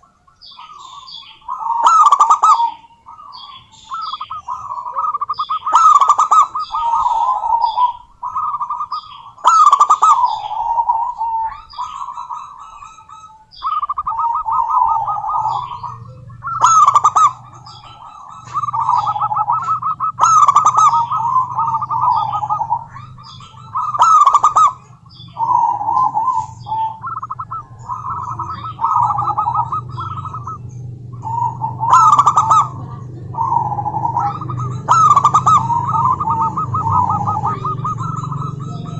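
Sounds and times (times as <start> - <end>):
dove cooing: 0.0 - 38.9
steady low hum: 0.0 - 38.9.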